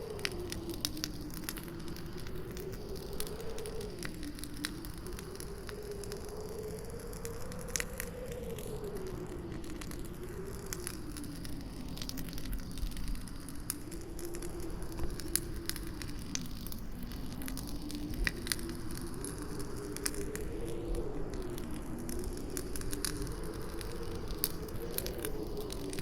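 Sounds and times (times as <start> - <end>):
campfire crackling and popping: 0.0 - 26.0
howling wind: 0.0 - 26.0.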